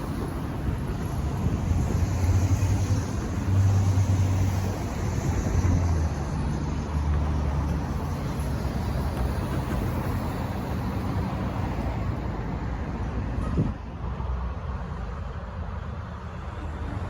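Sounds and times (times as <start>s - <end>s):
freight train rumbling past: 0.0s - 14.3s.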